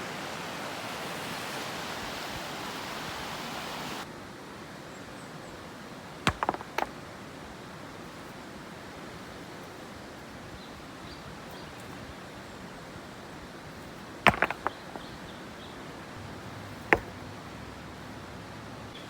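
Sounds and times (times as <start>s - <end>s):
background hiss: 0.0s - 19.0s
rocks clacking together: 6.3s - 7.4s, 13.7s - 17.6s.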